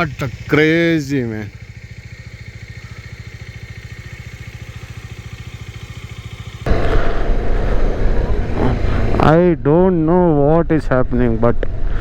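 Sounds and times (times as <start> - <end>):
motorcycle engine idling: 0.0 - 9.3
loud rushing rumble: 6.6 - 12.0.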